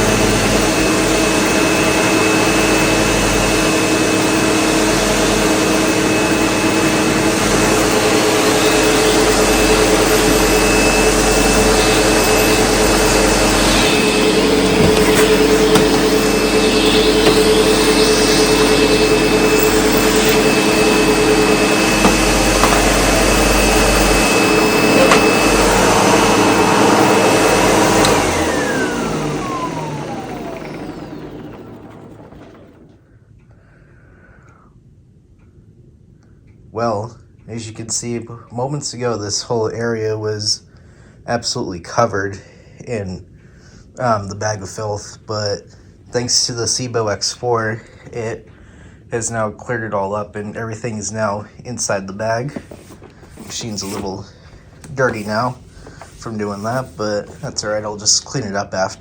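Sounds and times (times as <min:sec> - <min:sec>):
vacuum cleaner motor whine: 0:00.0 - 0:33.1, 0:52.3 - 0:59.0.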